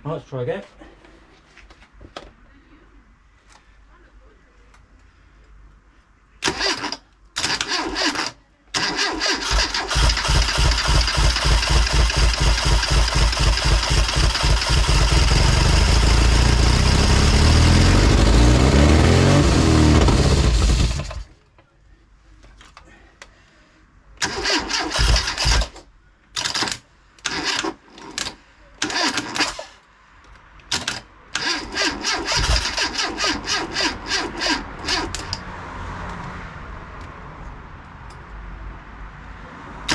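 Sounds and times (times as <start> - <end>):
starter motor cranking: 6.4 - 21.3, 24.2 - 25.8, 26.4 - 29.8, 30.7 - 35.4
car engine firing and revving: 9.5 - 21.3.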